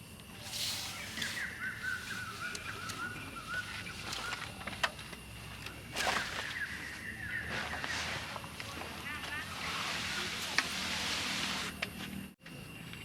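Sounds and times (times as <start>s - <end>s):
faint noisy background: 0.0s - 13.0s
bird singing: 0.6s - 9.9s.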